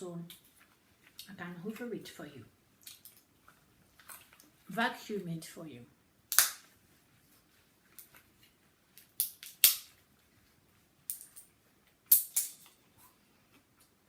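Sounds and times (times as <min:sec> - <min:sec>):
walnut shells cracking: 0:09.0 - 0:09.9, 0:11.1 - 0:11.5, 0:12.1 - 0:12.7.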